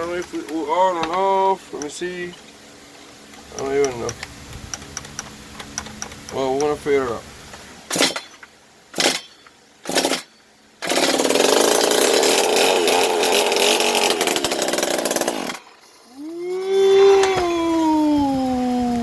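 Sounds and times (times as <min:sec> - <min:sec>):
concrete saw engine running: 0:09.9 - 0:19.0.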